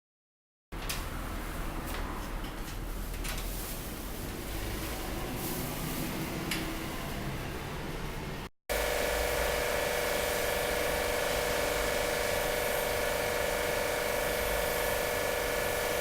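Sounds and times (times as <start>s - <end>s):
hiss: 8.8s - 16.0s.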